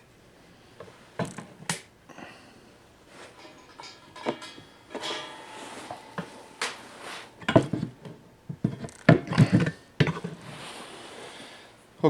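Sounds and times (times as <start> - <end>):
tools clattering on work surface: 3.1 - 10.6.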